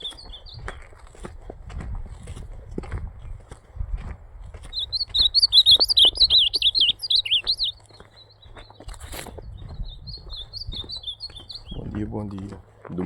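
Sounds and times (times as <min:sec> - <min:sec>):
bird singing warbling phrase: 0:04.7 - 0:07.8, 0:09.8 - 0:12.0.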